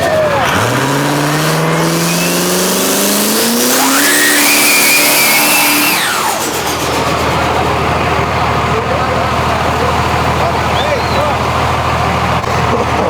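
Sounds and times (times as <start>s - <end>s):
drag racing engine at full throttle: 0.0s - 13.0s
high whine: 1.5s - 11.9s.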